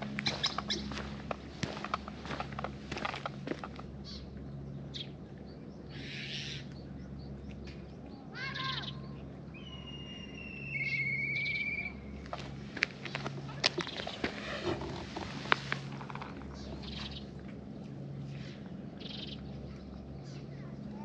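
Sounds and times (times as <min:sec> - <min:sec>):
low steady hum: 0:00.0 - 0:21.0
songbird singing: 0:00.0 - 0:21.0
cats crunching food: 0:12.2 - 0:17.6.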